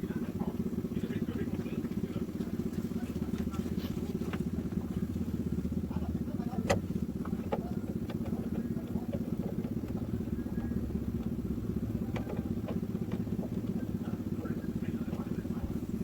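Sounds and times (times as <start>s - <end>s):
engine idling: 0.0s - 16.0s
light metallic clicks and taps: 6.5s - 15.4s.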